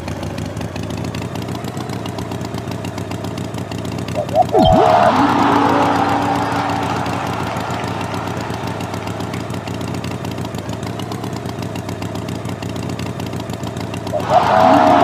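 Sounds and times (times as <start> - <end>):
cartoon tractor engine hum: 0.0 - 15.0
noise burst with held tone: 4.2 - 10.7, 14.2 - 15.0
pitch swoop sound effect: 4.2 - 10.8, 14.1 - 15.0.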